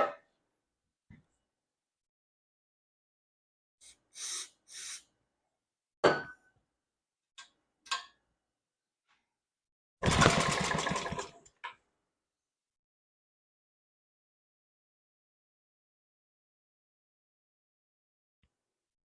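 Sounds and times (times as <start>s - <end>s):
small engine firing and running: 10.0s - 11.4s
pull-start cord pulls: 10.0s - 11.7s.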